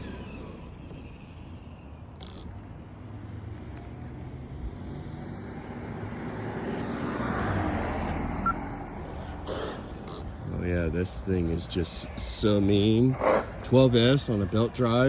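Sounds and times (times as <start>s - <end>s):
vehicle driving past: 0.0s - 9.6s.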